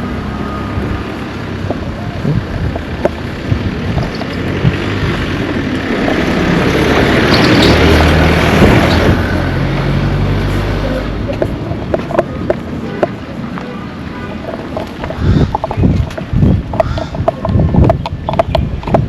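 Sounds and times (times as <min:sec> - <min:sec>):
vehicle driving past: 0:04.4 - 0:11.3.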